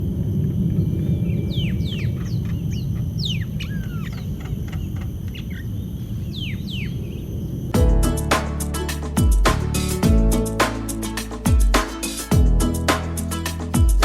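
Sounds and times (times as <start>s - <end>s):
birds whistling downward: 1.0s - 7.3s
steady low rumble: 7.7s - 14.0s.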